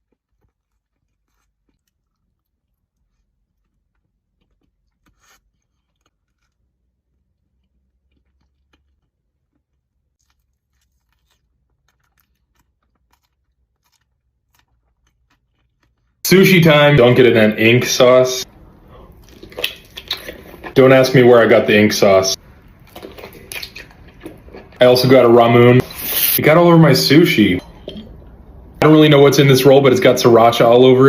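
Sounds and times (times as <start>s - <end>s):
faint chewing: 0.0s - 16.2s, 18.4s - 20.8s, 22.4s - 24.8s
mouth clicks and crunches: 0.0s - 16.2s, 18.5s - 21.0s, 22.6s - 25.0s.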